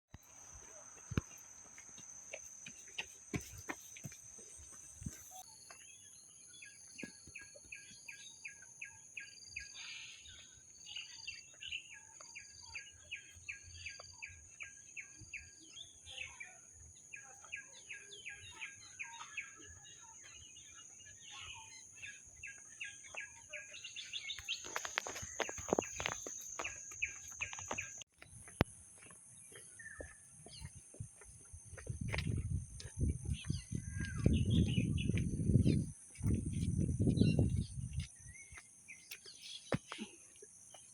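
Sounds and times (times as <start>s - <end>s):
insects droning buzz: 0.2s - 5.4s, 23.8s - 29.5s.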